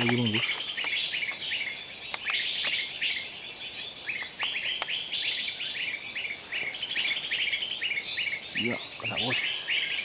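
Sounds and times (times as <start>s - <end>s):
sharp ticks: 0.0s - 1.4s
small birds chirping: 0.0s - 10.0s.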